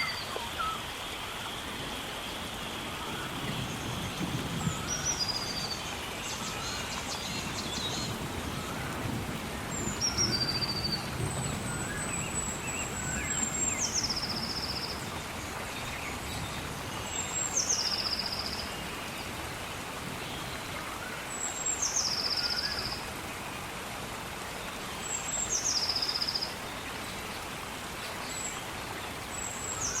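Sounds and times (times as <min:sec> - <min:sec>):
bird whistle and trill song: 0:00.0 - 0:00.8
faint bird chirps: 0:00.0 - 0:01.6
gentle rain falling: 0:00.0 - 0:30.0.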